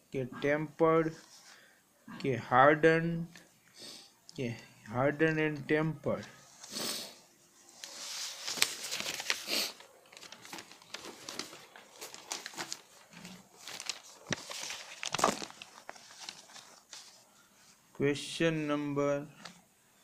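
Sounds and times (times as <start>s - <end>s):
rustling and crinkling handling noise: 7.4s - 17.9s.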